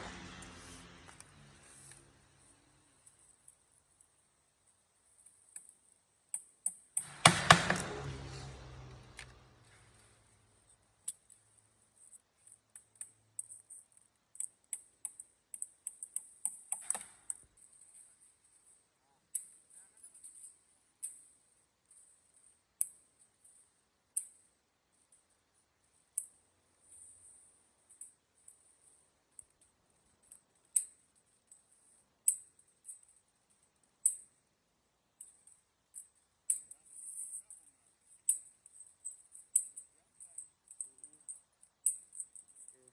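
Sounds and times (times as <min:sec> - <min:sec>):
sharp clicks and taps: 0:06.3 - 0:08.1.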